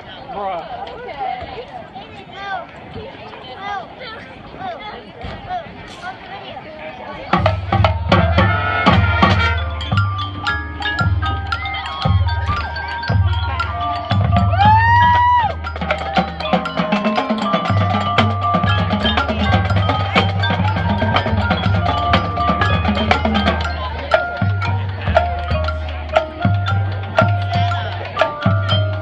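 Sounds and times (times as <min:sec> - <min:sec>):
marching band music: 0:07.1 - 0:29.0
low drum pattern: 0:07.3 - 0:29.0
marimba and bells: 0:07.3 - 0:29.0.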